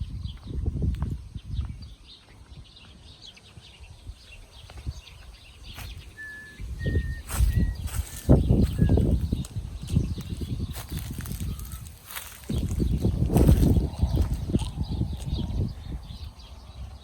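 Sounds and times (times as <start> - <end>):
low rumbling on microphone: 0.0 - 17.0
small birds chirping: 0.0 - 17.0
whistled bird notes: 5.0 - 13.1.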